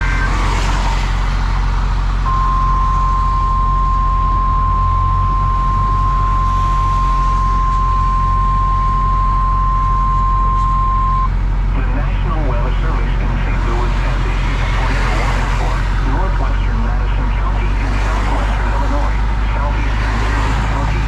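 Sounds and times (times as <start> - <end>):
truck engine rumbling: 0.0 - 21.0
steady electronic beep tone: 2.3 - 11.3.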